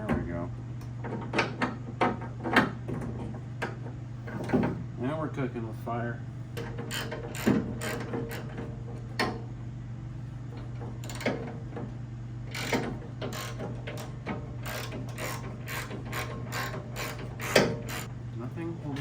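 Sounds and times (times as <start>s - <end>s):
hand ratchet clicking: 12.5s - 18.1s.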